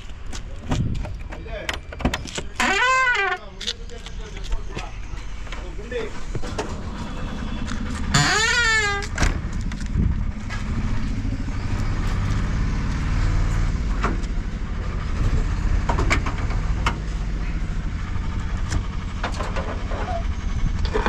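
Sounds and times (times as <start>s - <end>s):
car engine idling: 3.8s - 13.1s, 13.7s - 21.0s.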